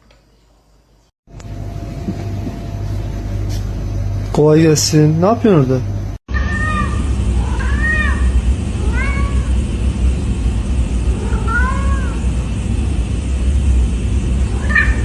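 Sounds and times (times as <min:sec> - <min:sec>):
steady low rumble: 0:01.3 - 0:15.0
cat meowing: 0:06.3 - 0:09.6, 0:11.1 - 0:12.2, 0:14.5 - 0:15.0.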